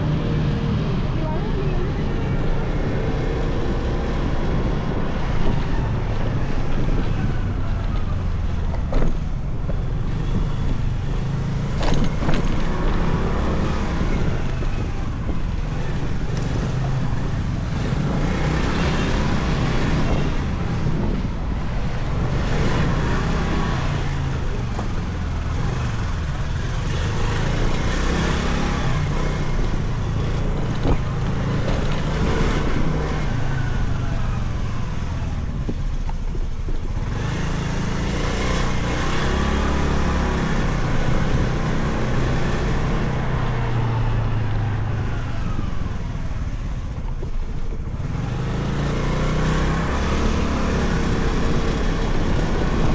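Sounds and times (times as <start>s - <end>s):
motorcycle engine revving: 0.0s - 52.9s
traffic: 0.0s - 52.9s
wind and road noise: 0.0s - 52.9s.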